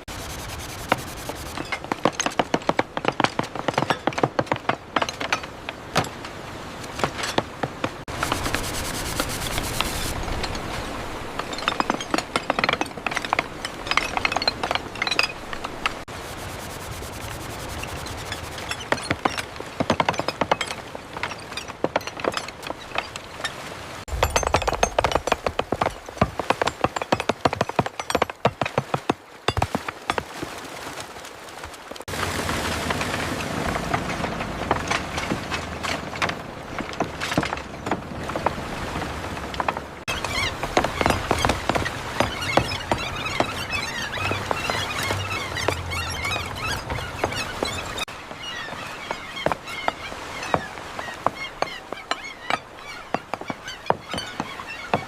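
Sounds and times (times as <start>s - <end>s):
steady background noise: 0.0s - 28.3s
hand tools tapping on wood: 0.3s - 6.1s, 24.2s - 30.2s, 39.4s - 43.7s, 49.4s - 55.0s.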